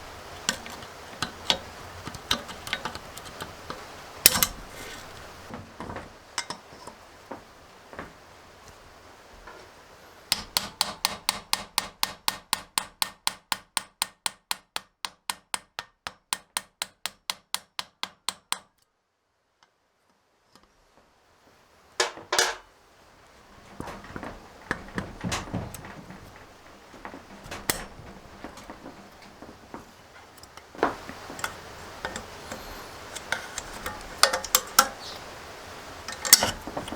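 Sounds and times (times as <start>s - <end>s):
tools clinking: 0.0s - 7.0s, 22.0s - 22.6s, 27.3s - 36.9s
hammer tapping rapidly: 10.3s - 18.6s.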